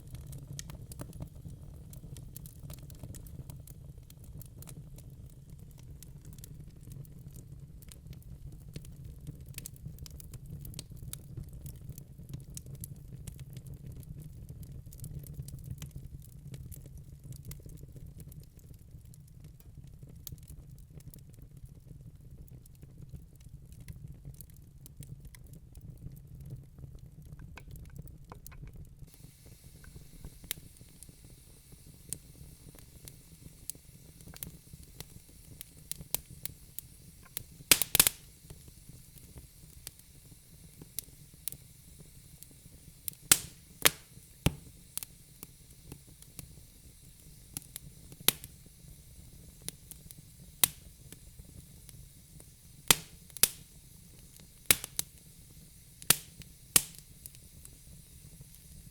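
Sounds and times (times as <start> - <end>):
logs crackling and popping: 0.0 - 58.9
low rumble of fire: 0.0 - 58.9
faint hiss: 22.1 - 58.9.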